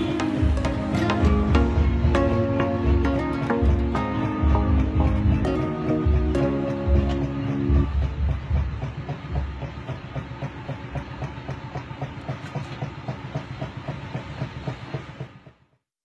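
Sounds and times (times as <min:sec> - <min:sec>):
background music: 0:00.0 - 0:08.9
table fan clattering: 0:00.0 - 0:15.7.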